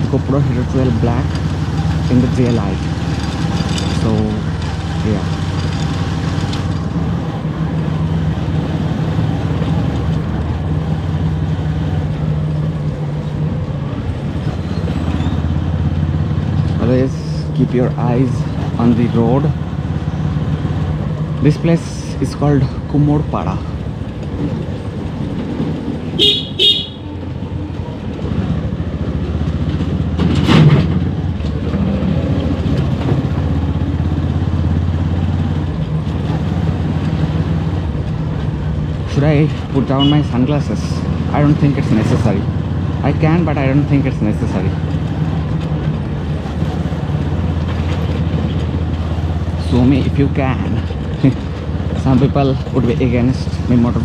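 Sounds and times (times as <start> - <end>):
motorcycle engine running: 23.7 - 30.4
horn beeps: 26.2 - 27.2, 40.0 - 40.3.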